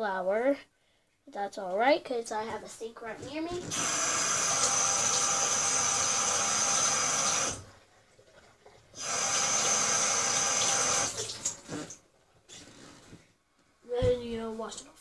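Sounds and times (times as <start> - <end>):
sink tap running: 3.5 - 7.7, 8.9 - 12.0.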